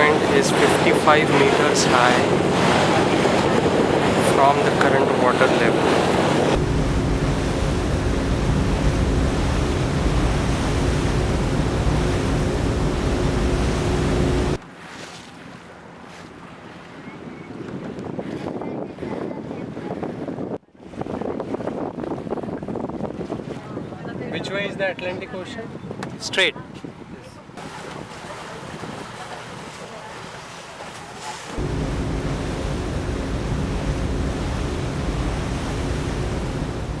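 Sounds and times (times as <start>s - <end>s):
wind on microphone: 0.0s - 14.6s, 16.8s - 29.2s, 31.6s - 37.0s
hiss of wind and water: 0.0s - 14.8s, 31.4s - 37.0s
motorboat engine running: 0.0s - 18.4s, 31.4s - 37.0s.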